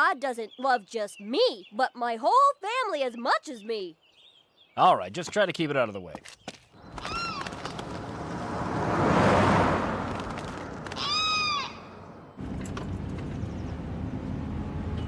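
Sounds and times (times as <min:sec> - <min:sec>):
squawk-like bird call: 0:06.8 - 0:07.8, 0:10.8 - 0:12.1.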